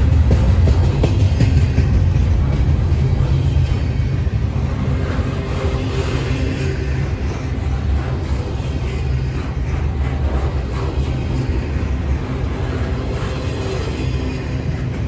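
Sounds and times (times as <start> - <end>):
freight train cars rumbling past: 0.0 - 15.0.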